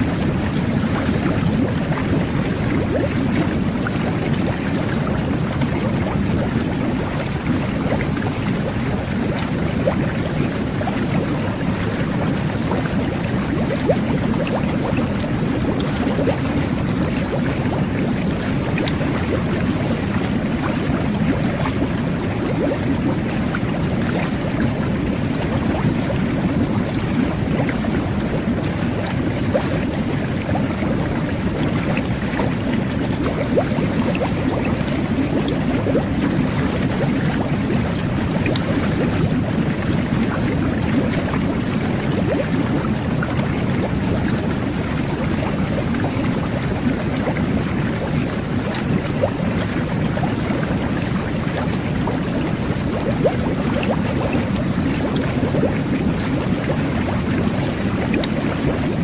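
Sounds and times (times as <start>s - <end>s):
jet bath water churning: 0.0s - 59.0s.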